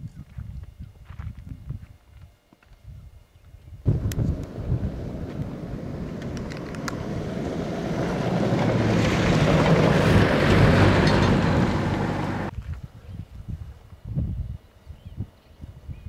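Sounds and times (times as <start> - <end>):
truck driving on gravel: 3.9 - 12.6.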